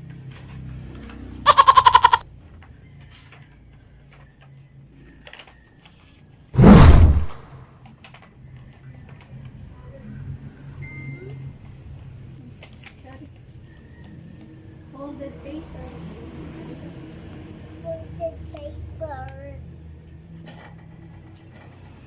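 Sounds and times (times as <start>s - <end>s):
quavering bleat-like call: 1.5s - 2.2s
loud burst of noise: 6.6s - 7.6s.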